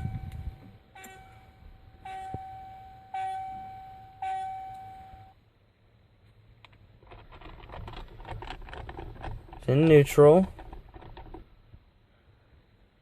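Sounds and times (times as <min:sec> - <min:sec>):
dashboard warning chime: 0:00.0 - 0:05.4
rustling: 0:06.3 - 0:11.5.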